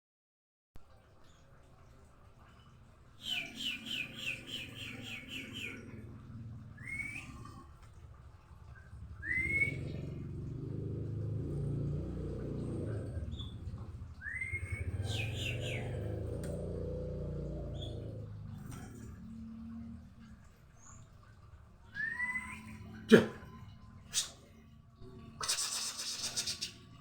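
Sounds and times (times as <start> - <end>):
bird calling with whistles: 3.2 - 5.8, 14.2 - 16.0, 21.9 - 22.9.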